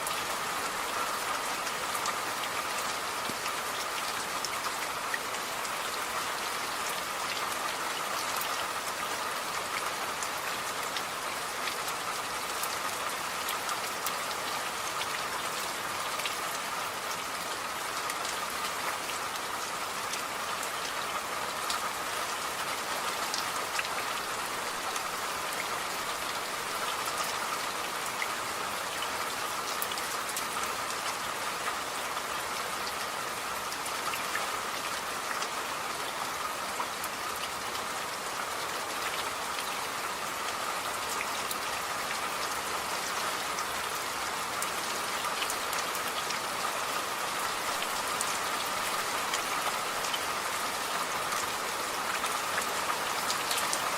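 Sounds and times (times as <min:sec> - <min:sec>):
raindrops ticking on a surface: 0:00.0 - 0:53.9
steady rain: 0:00.0 - 0:53.9.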